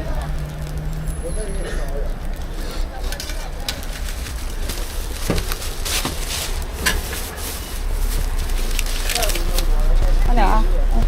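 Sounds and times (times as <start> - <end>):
steady low rumble: 0.0 - 11.0
utensils scraping a griddle: 2.3 - 9.7.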